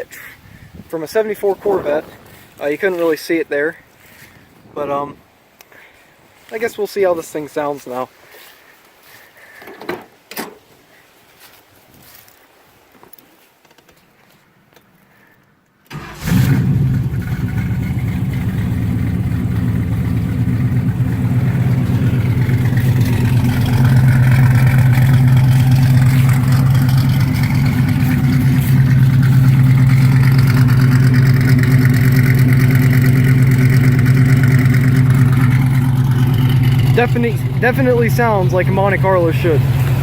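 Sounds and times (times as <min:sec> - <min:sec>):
car engine starting and idling: 0:15.9 - 0:40.0.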